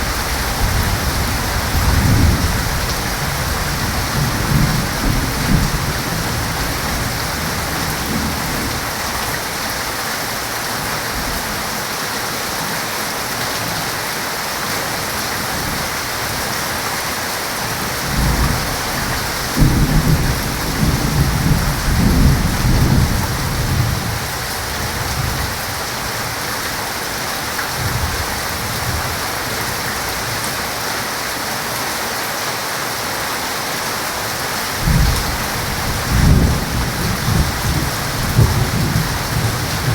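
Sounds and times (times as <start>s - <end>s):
thunder rumbling: 0.0s - 8.9s, 18.0s - 25.5s, 34.8s - 39.9s
heavy rain falling: 0.0s - 39.9s.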